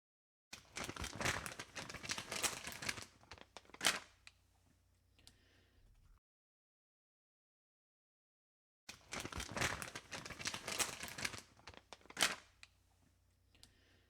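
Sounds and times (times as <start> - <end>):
wrapping crinkling and rustling: 0.6 - 4.4, 8.9 - 12.8.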